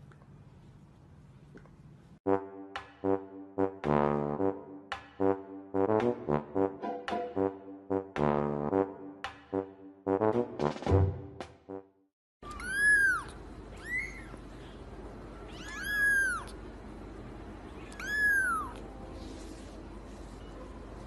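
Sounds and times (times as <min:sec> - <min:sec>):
kitten meowing: 0:12.4 - 0:14.4, 0:15.4 - 0:16.6, 0:17.8 - 0:18.8.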